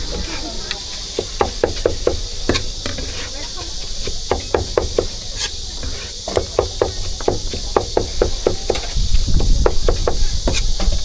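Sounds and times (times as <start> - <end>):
cleaver chopping on wooden board: 4.3 - 5.1, 5.8 - 10.9.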